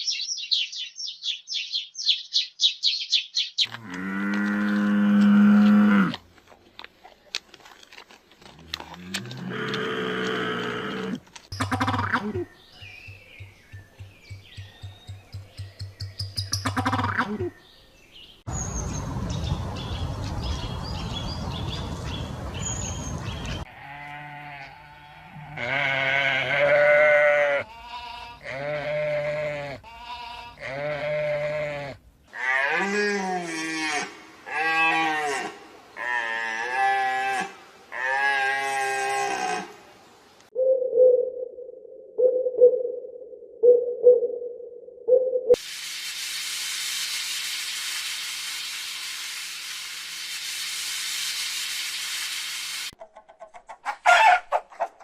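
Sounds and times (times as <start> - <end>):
bird chirps: 0.0 - 3.7, 12.4 - 16.9, 17.5 - 23.7
rustling: 6.1 - 11.5
sheep bleating: 23.7 - 39.8.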